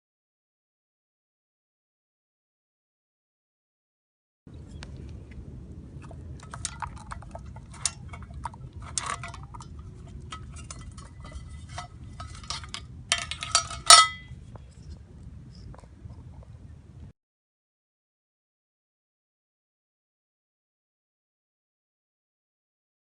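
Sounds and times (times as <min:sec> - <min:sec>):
low steady rumble: 0:04.5 - 0:17.1
metal cookware clinking: 0:06.4 - 0:14.3.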